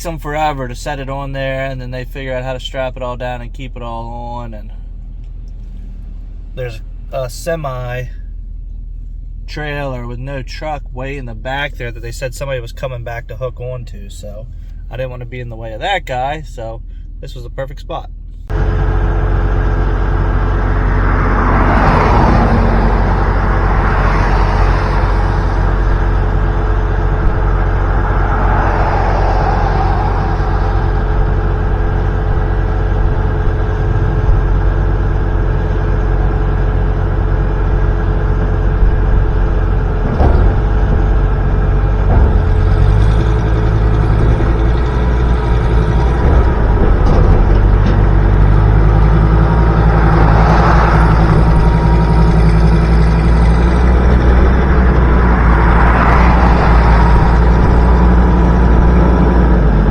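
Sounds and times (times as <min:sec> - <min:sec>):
truck engine running: 0:00.0 - 0:59.9
vehicles swooshing past: 0:20.1 - 0:35.1, 0:35.8 - 0:59.9
brief knocks: 0:39.9 - 0:44.8.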